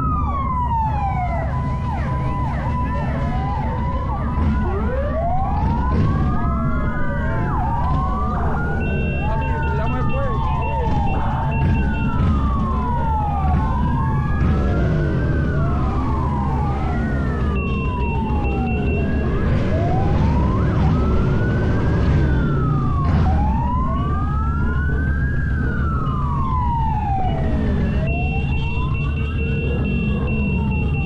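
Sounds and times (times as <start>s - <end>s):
low engine rumble: 0.0s - 30.3s
emergency sirens wailing: 0.0s - 31.0s.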